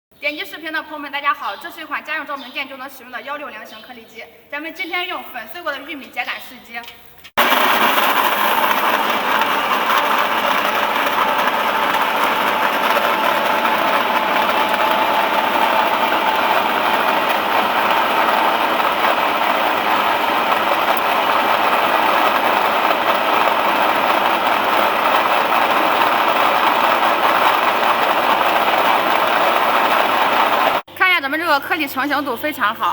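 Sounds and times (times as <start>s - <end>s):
pellet mill humming and whining: 7.4s - 30.8s.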